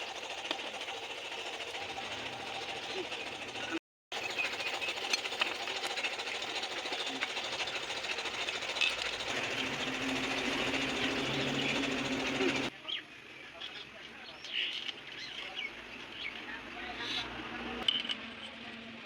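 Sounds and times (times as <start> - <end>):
small machine rattling: 0.0 - 12.7.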